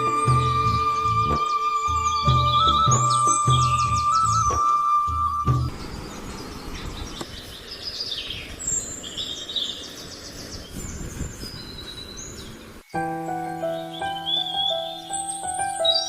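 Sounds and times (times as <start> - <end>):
music: 0.0 - 5.8, 13.0 - 16.0
birds chirping and calling: 0.0 - 16.0.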